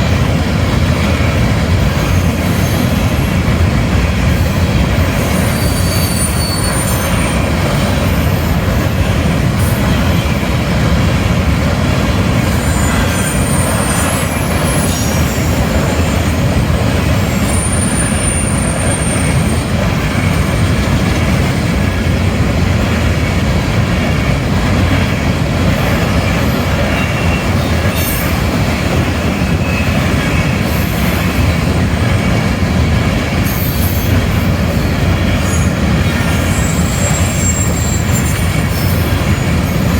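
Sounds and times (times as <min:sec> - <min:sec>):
freight train wheels on rails: 0:00.0 - 0:39.9
high-pitched wheel squeals: 0:05.2 - 0:09.0, 0:12.4 - 0:16.2, 0:17.3 - 0:20.6, 0:33.4 - 0:39.9.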